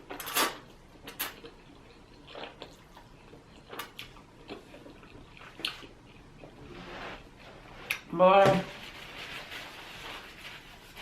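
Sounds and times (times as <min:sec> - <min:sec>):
wet chewing: 0:01.0 - 0:06.6.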